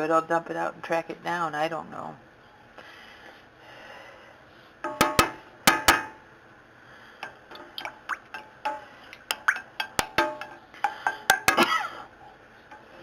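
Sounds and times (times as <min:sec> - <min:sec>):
metal spoon clinking against pot: 0:07.2 - 0:11.6.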